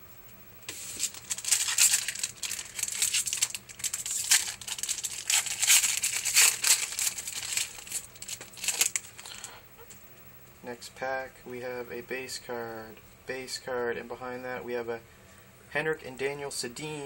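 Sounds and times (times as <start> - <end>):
foil wrapper tearing and crinkling: 0.7 - 9.6.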